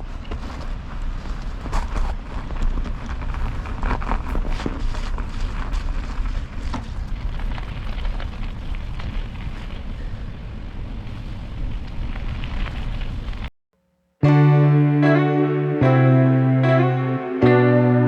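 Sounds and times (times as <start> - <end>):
bicycle tyre noise on road: 0.0 - 13.5
guitar music with effects: 14.2 - 18.0.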